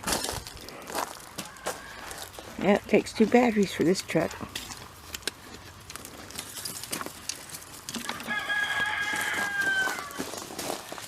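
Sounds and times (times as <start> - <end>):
rooster crowing: 8.0 - 10.4.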